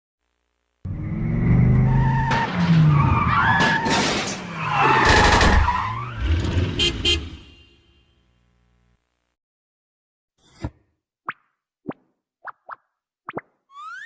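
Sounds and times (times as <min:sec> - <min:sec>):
cartoon skidding screeches: 0:01.0 - 0:07.4.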